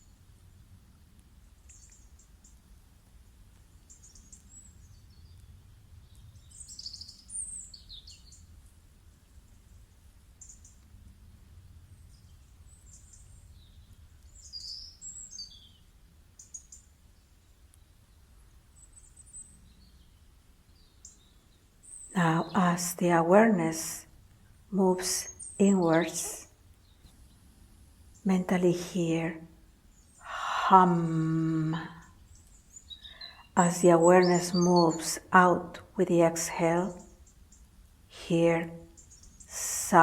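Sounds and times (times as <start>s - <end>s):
birds chirping: 20.8s - 40.0s
low steady hum: 21.9s - 40.0s.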